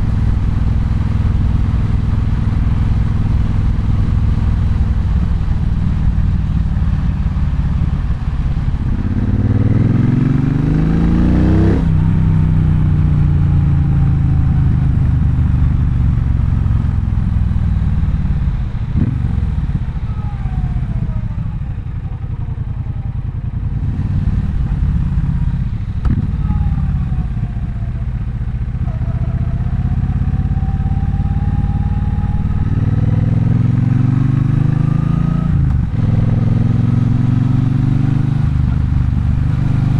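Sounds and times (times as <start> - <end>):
motorcycle engine revving: 4.2 - 39.9.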